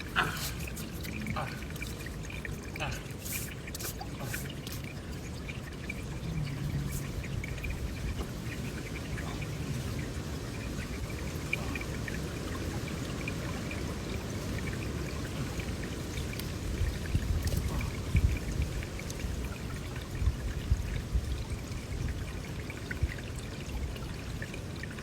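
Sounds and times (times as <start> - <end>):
running water rushing: 0.0 - 25.0
faint ticks: 16.2 - 16.6.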